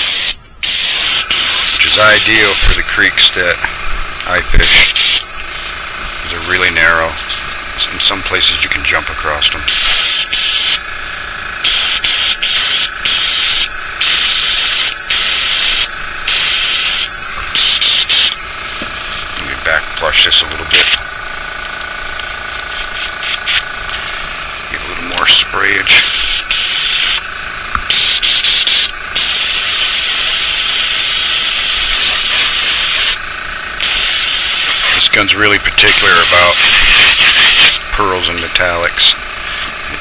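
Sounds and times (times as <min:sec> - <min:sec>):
spray gun hissing bursts: 0:00.0 - 0:02.8, 0:04.6 - 0:06.2, 0:09.6 - 0:10.8, 0:11.6 - 0:19.4, 0:22.2 - 0:25.0, 0:25.9 - 0:27.2, 0:27.9 - 0:33.2, 0:33.8 - 0:35.1, 0:35.8 - 0:37.8
steady air hiss: 0:00.0 - 0:40.0.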